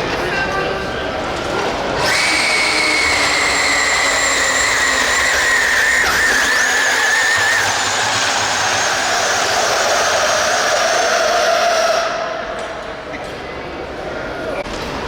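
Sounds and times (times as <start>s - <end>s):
electric motor whining: 2.0s - 12.2s.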